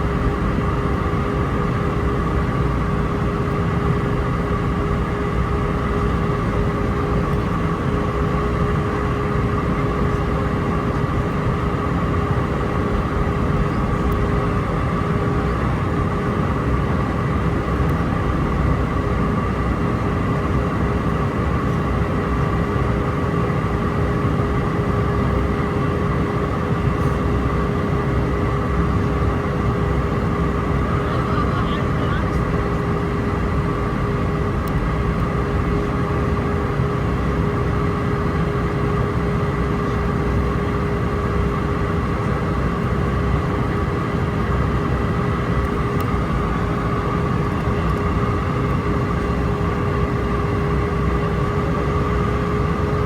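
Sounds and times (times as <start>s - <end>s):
jet engines droning: 0.0s - 53.0s
steady whining tones: 26.7s - 52.6s.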